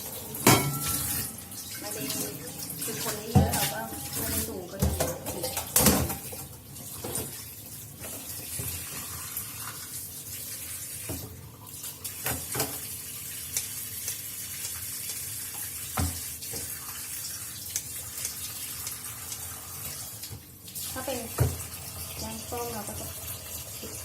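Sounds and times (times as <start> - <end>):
tap running into sink: 12.2 - 12.9, 15.0 - 16.8, 21.2 - 23.1, 23.7 - 24.0.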